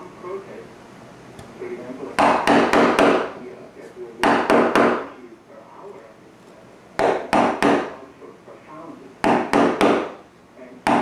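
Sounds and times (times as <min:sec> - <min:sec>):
mallet knocking carving tool: 0:07.0 - 0:07.9, 0:09.2 - 0:10.1.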